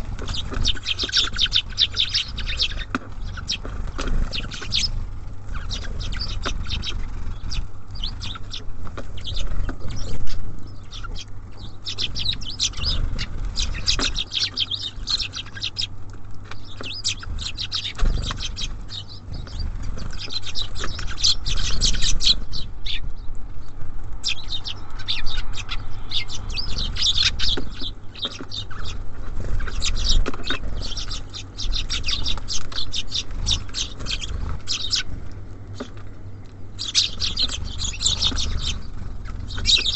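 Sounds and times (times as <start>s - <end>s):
songbirds chirping: 0.0s - 39.9s
steady low hum: 0.0s - 39.9s.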